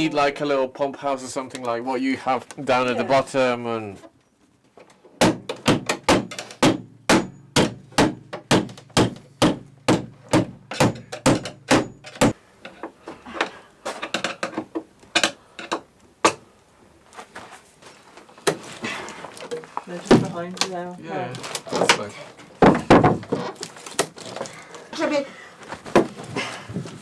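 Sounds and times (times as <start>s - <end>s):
hammer-like knocking: 5.2s - 12.4s.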